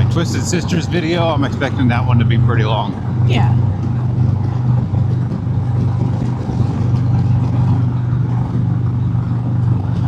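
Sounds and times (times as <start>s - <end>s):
motorcycle engine cruising: 0.0s - 10.0s
wind and road noise: 0.0s - 10.0s.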